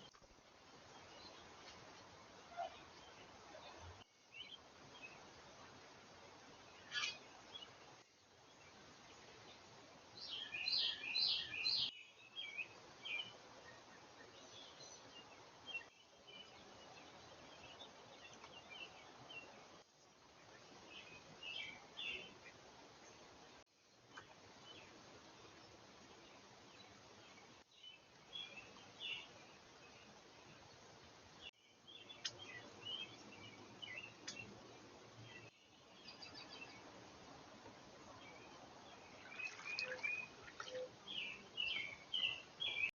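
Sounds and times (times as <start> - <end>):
songbirds chirping: 0.0 - 42.9
steady background hiss: 0.0 - 42.9.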